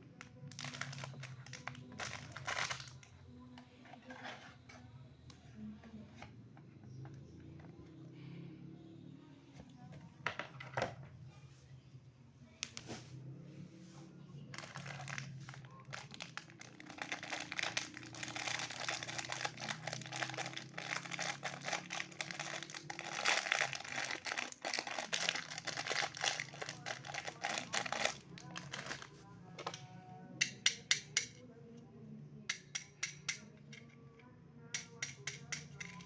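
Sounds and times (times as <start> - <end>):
toy packaging crinkling: 0.5 - 3.1, 14.6 - 29.2.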